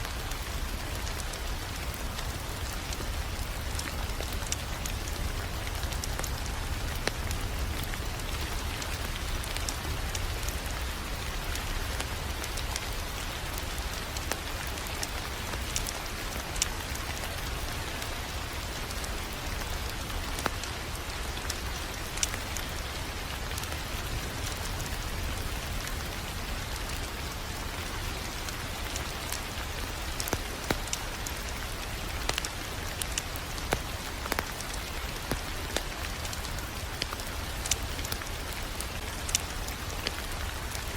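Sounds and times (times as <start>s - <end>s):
crackling wood fire: 0.0s - 40.9s
sharp pops from fire: 32.3s - 38.3s, 39.0s - 40.8s.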